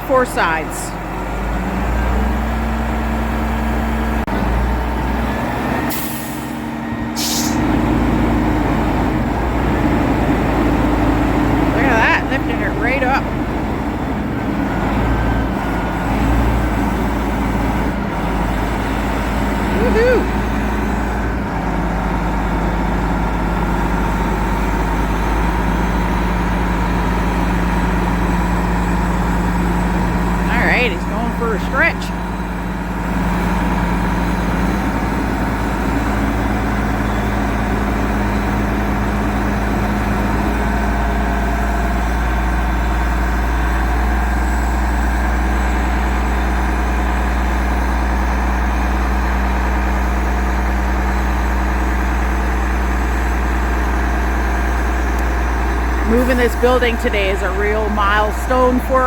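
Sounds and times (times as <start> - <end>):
diesel engine running: 0.0 - 59.0
air hissing bursts: 7.2 - 7.6.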